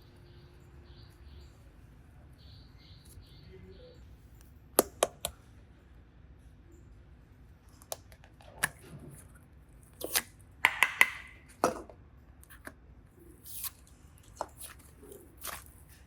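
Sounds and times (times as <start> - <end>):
slime clicking and tapping: 4.8 - 5.4, 10.6 - 11.4
sticky squishes: 8.5 - 11.2, 13.4 - 16.0.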